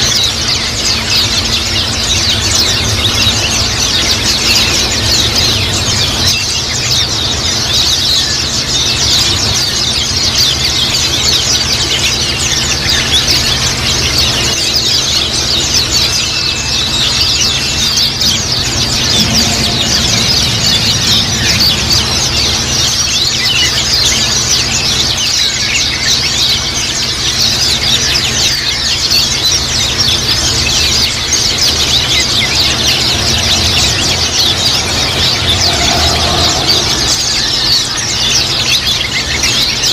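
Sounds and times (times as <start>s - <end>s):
flock of birds chirping: 0.0s - 39.9s
steady low hum: 0.0s - 39.9s.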